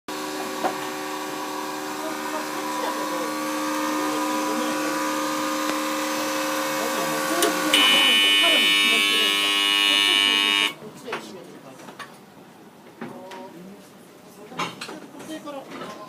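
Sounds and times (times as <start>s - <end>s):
machine motor humming: 0.2s - 10.8s.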